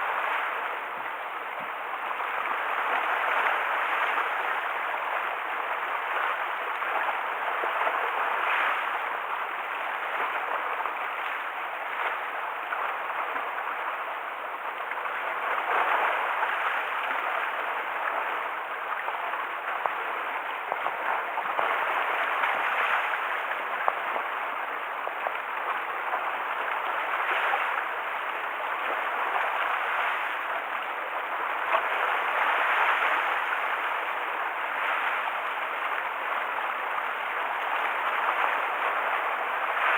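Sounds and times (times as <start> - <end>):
waves splashing against shore: 15.0 - 39.9.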